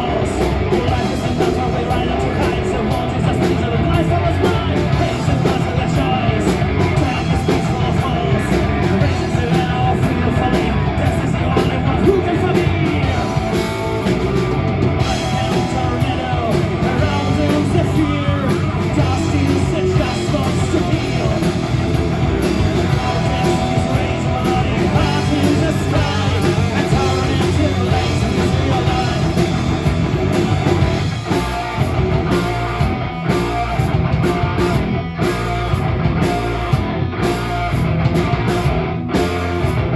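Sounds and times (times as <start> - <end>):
person singing: 0.0 - 14.2, 15.0 - 31.8
bass guitar: 0.0 - 39.9
distorted electric guitar: 0.0 - 39.9
drum kit: 0.0 - 39.9.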